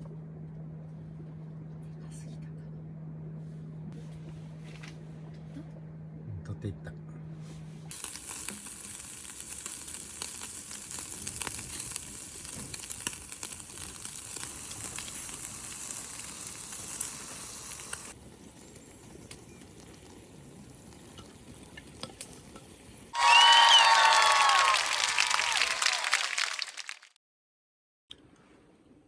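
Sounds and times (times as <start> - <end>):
food sizzling in hot oil: 7.9 - 23.5.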